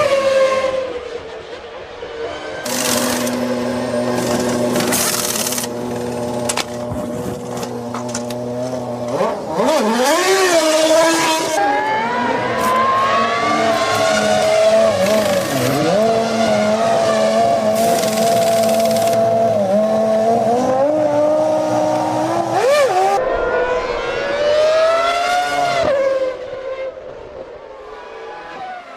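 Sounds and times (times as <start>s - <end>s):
racing car engine revving: 2.6s - 28.9s.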